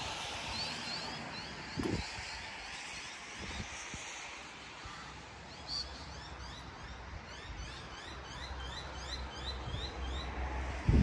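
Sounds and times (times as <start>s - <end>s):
rain hiss: 0.0s - 6.3s
road traffic rumble: 0.0s - 11.0s.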